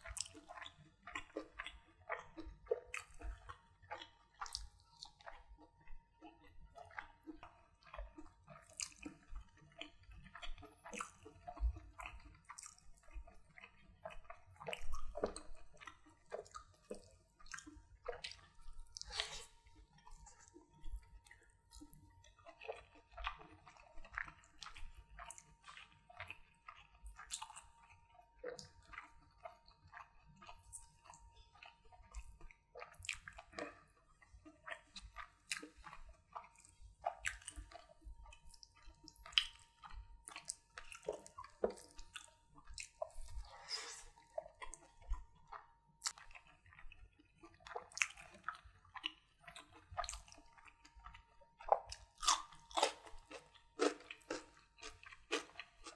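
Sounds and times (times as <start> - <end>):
wet chewing and smacking: 0.0 - 55.9.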